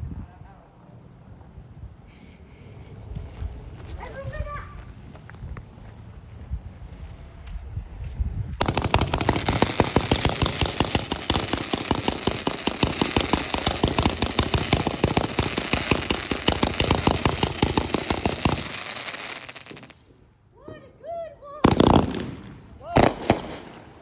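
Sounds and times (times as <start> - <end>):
firework crackling pops: 8.6 - 20.0, 21.6 - 24.0.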